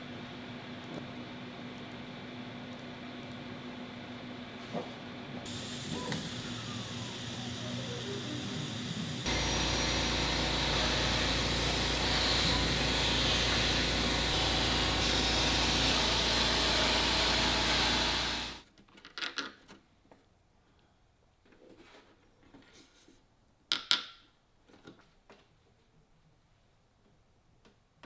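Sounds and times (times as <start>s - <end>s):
workshop machine humming and hissing: 3.5s - 18.6s.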